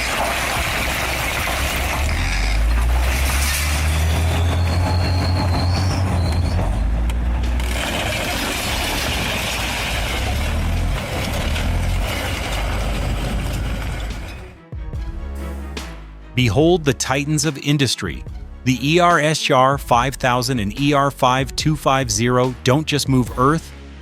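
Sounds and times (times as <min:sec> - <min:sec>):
heavy machinery rumbling: 0:00.0 - 0:15.4
high metallic squeal: 0:02.0 - 0:14.5.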